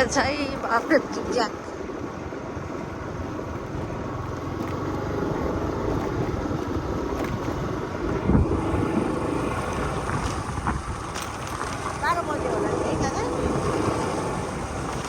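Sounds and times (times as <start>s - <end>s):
scooter engine and tyre rumble: 0.0s - 15.0s
scooter jolt: 4.5s - 15.0s.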